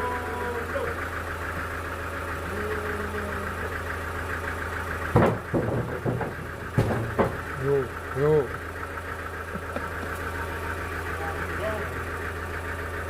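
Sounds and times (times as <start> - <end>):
engine idling: 0.0 - 13.0
loud knocks: 5.1 - 7.7.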